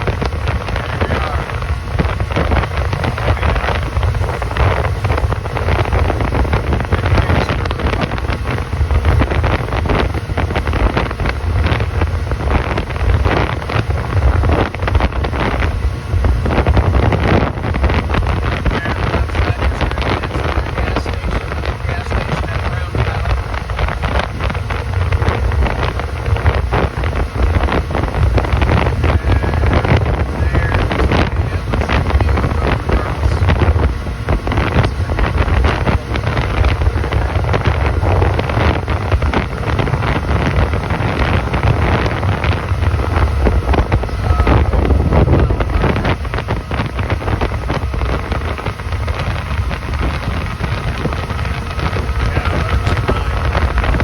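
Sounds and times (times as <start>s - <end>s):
hull rushing through water: 0.0s - 54.0s
motorboat engine drone: 0.0s - 54.0s
wind buffeting microphone: 0.0s - 54.0s.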